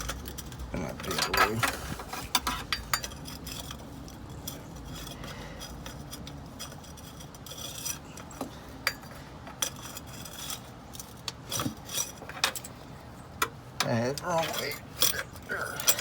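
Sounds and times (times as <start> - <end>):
wrench clinking on metal: 0.0 - 12.8, 13.8 - 16.0
wrench scraping: 0.0 - 16.0.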